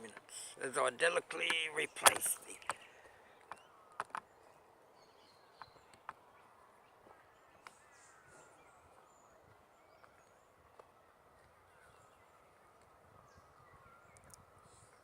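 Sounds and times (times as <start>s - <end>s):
faint distant birdsong: 0.0s - 15.0s
sharp clicks: 1.1s - 4.3s.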